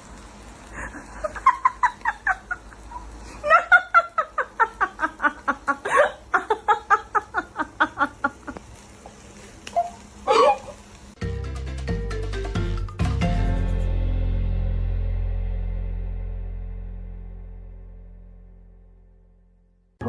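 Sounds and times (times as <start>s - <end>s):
person laughing hard: 0.8s - 8.6s.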